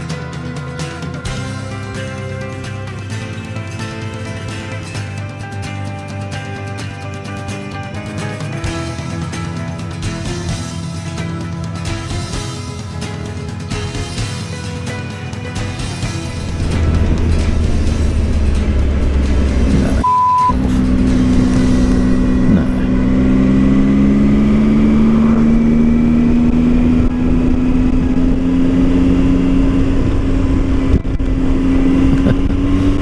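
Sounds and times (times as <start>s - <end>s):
motorcycle engine accelerating: 0.0s - 33.0s
short steady beep: 20.0s - 20.6s
wind noise: 25.0s - 33.0s.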